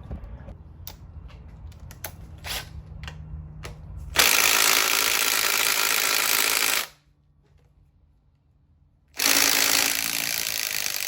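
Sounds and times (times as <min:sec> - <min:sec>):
power tool on bolts: 0:04.2 - 0:07.0, 0:09.1 - 0:11.0.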